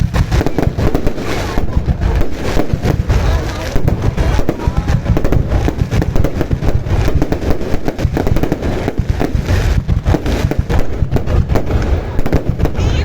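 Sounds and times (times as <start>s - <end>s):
fireworks booming and crackling: 0.0s - 13.0s.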